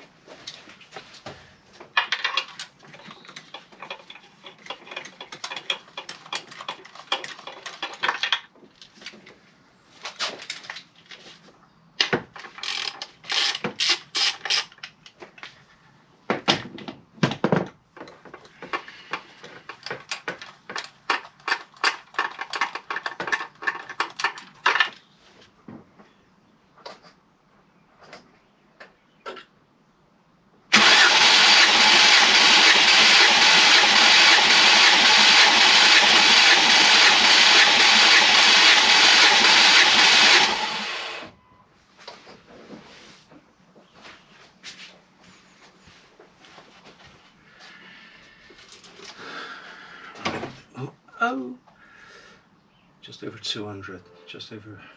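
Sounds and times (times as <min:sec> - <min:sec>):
quick clicks and rattles: 0:01.9 - 0:08.5, 0:12.3 - 0:15.1, 0:18.0 - 0:25.0
engine cranking on starter motor: 0:30.7 - 0:41.3.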